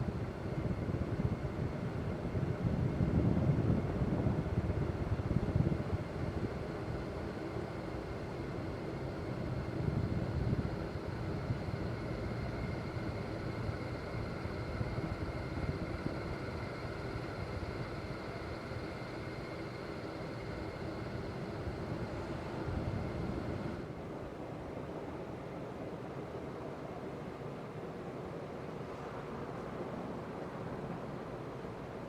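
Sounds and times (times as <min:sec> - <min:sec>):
ceiling fan running: 0:00.0 - 0:32.0.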